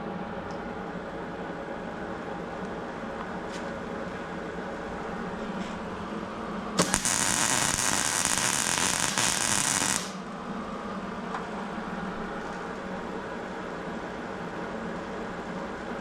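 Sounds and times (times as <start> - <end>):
steady low hum: 0.0 - 16.0
loud even hiss: 6.8 - 10.2.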